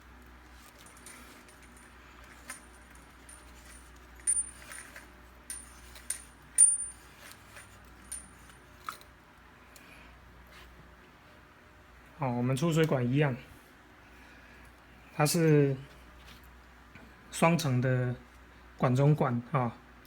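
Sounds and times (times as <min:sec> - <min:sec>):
metal parts clinking: 0:00.6 - 0:09.1.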